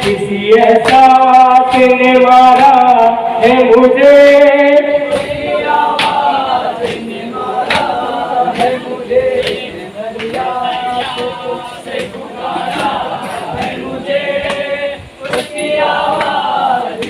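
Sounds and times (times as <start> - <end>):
men singing a lament in chorus: 0.0 - 17.0
sharp beats keeping time: 0.0 - 17.0.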